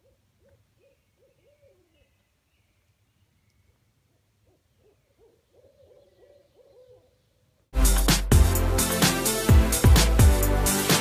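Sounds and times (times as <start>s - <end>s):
bird hooting calls: 0.0s - 2.8s, 3.4s - 7.5s.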